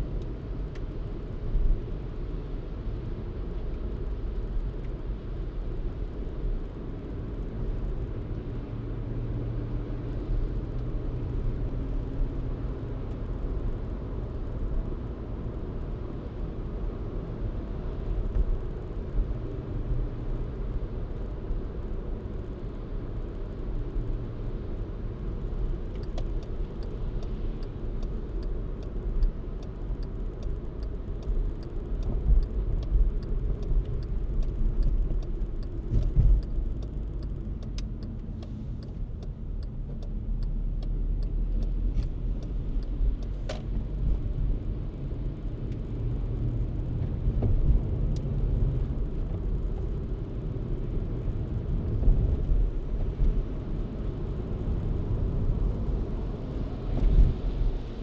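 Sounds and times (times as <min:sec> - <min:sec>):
car road and engine rumble: 0:00.0 - 0:58.0
faint evenly spaced ticks: 0:25.9 - 0:35.8.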